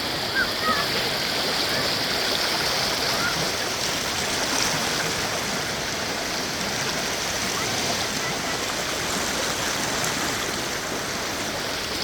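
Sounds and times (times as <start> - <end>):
stream water rushing and splashing: 0.0 - 12.0.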